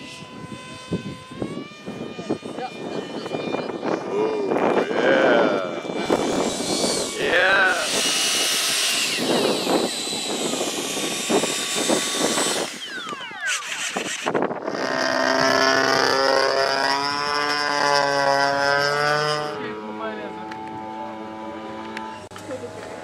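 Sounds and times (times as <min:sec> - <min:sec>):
falling engine whine: 0:00.0 - 0:23.0
model airplane engine: 0:00.0 - 0:23.0.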